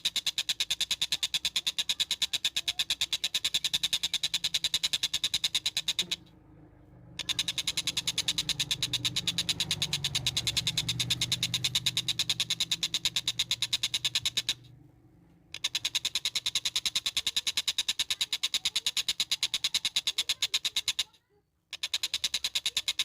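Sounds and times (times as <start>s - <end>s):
bird calling in fast sharp pulses: 0.0s - 6.3s, 7.2s - 14.7s.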